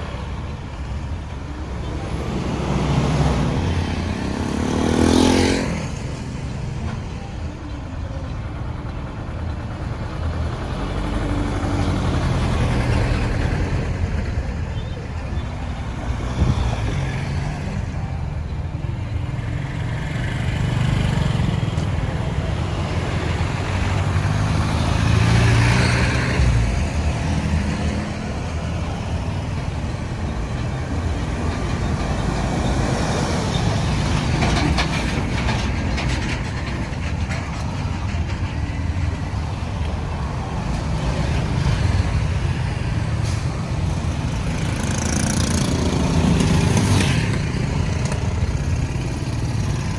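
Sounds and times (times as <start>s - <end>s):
road traffic rumble: 0.0s - 49.9s
vehicle passing loudly: 1.8s - 6.2s, 19.8s - 36.9s.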